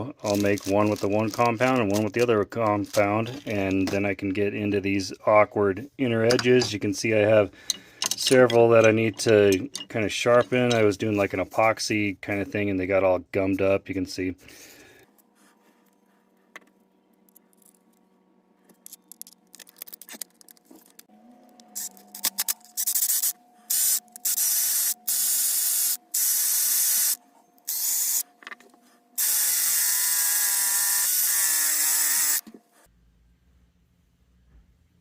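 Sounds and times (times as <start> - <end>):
drill motor whine: 29.2 - 32.4.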